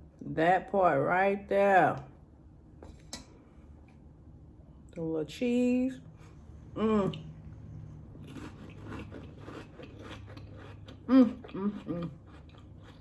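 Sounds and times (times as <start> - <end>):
chewing crisp crackers: 8.1 - 13.0.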